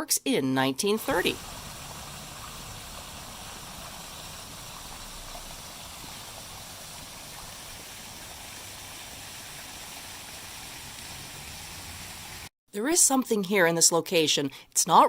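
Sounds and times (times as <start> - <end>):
fountain water splashing: 1.0 - 12.5.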